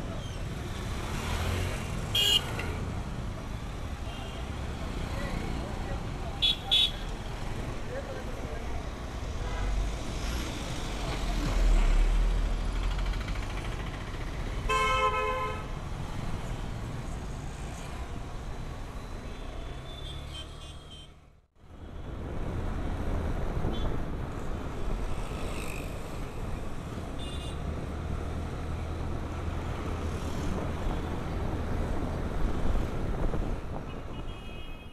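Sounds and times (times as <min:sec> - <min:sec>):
road traffic engine rumble: 0:00.0 - 0:20.1.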